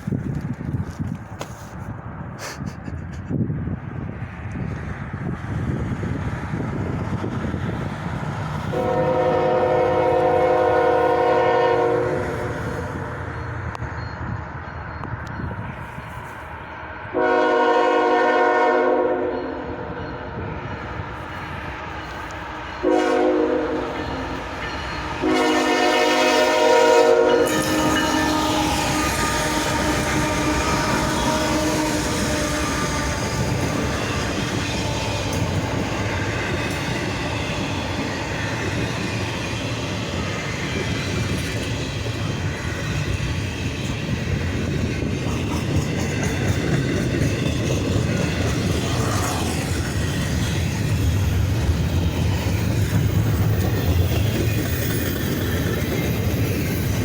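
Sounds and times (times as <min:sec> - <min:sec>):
train rumbling past: 0:00.0 - 0:57.0
train horn: 0:08.7 - 0:12.8, 0:17.1 - 0:20.0, 0:21.8 - 0:35.9.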